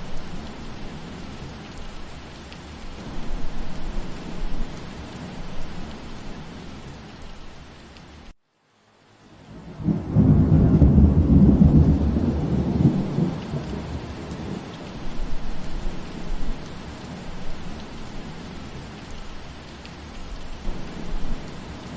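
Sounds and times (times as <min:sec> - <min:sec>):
rain hiss: 0:00.0 - 0:21.9
thunder rumbling: 0:09.5 - 0:18.6.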